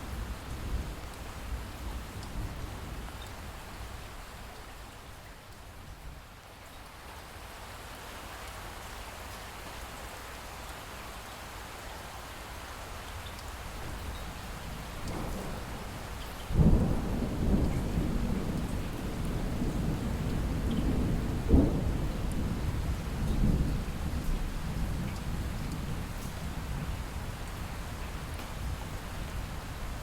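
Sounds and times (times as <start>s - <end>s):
light rain falling: 0.0s - 30.0s
thunder rumbling and cracking: 13.8s - 26.9s.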